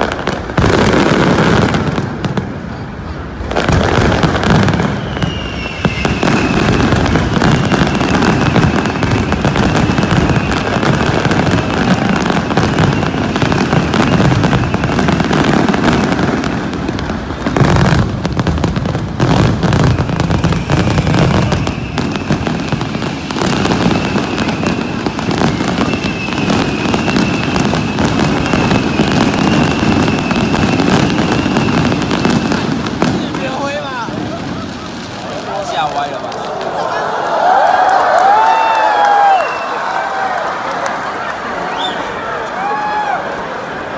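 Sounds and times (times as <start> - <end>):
fireworks crackling bangs: 0.0 - 43.9
faint high whistle: 4.7 - 10.9, 19.8 - 23.0, 23.7 - 32.7, 41.7 - 42.2.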